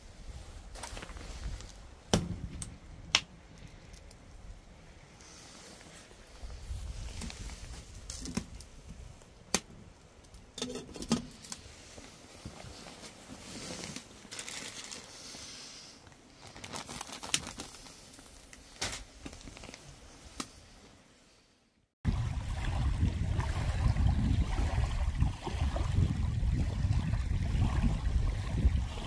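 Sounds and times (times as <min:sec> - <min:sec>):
crinkling and rustling: 0:00.4 - 0:02.8, 0:05.6 - 0:09.3, 0:10.2 - 0:15.4, 0:16.0 - 0:21.0.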